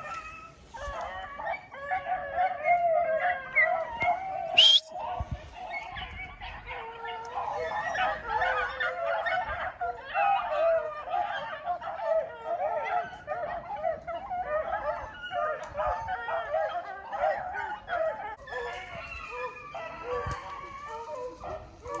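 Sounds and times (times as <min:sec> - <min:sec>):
beagles baying: 0:00.0 - 0:22.0.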